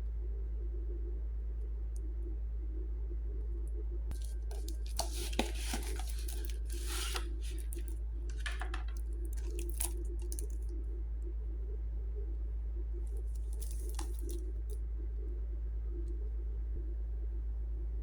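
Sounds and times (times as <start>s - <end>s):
steady low hum: 0.0s - 18.0s
packaging being torn open: 4.2s - 10.5s.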